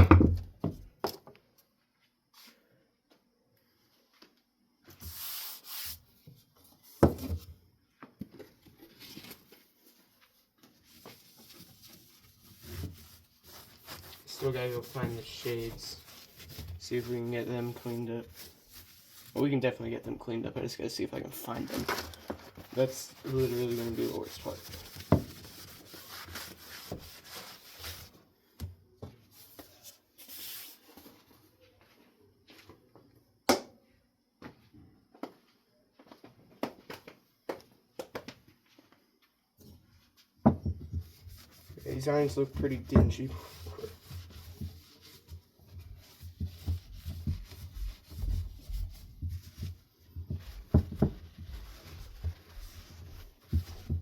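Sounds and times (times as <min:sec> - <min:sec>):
rubbing on a desk: 0:10.9 - 0:19.4, 0:22.7 - 0:28.1, 0:41.0 - 0:54.0
scratchy scrubbing: 0:11.4 - 0:19.7, 0:22.7 - 0:28.1.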